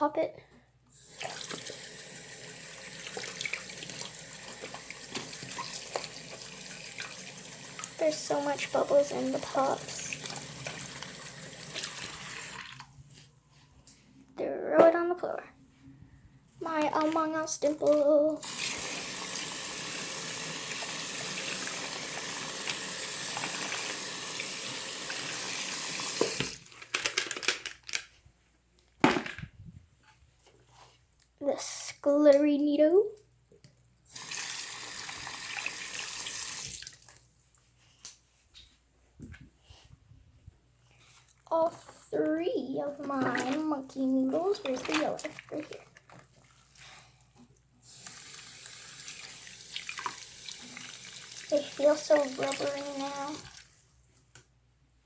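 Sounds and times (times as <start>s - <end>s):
tap water running: 0.9s - 13.0s, 16.6s - 26.8s, 34.1s - 37.3s, 42.8s - 46.6s, 47.8s - 53.8s
water splashing on rubber toy: 2.9s - 13.0s, 16.6s - 27.5s, 42.8s - 53.9s.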